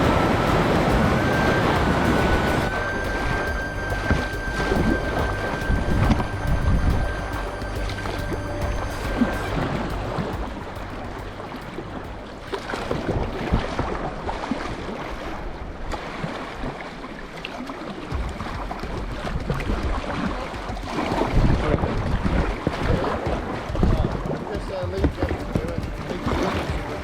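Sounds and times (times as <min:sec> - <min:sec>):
wind buffeting microphone: 0:00.0 - 0:15.9
river water rushing and splashing: 0:00.0 - 0:27.0.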